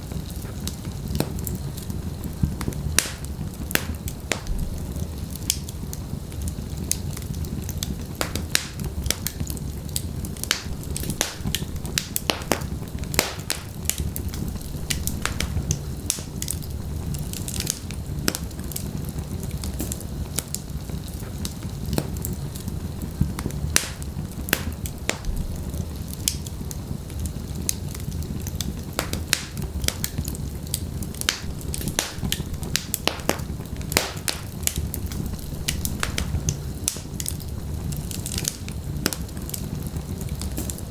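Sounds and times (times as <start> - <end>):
logs crackling and popping: 0.0 - 40.9
low rumble of flames: 0.0 - 40.9.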